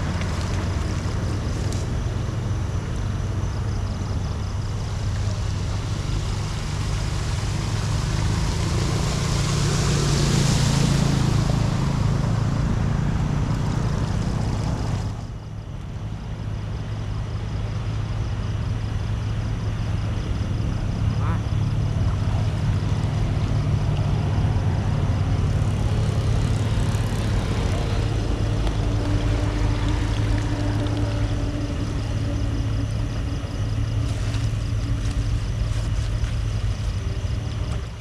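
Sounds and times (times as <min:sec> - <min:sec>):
engine running steadily: 0:00.0 - 0:38.0.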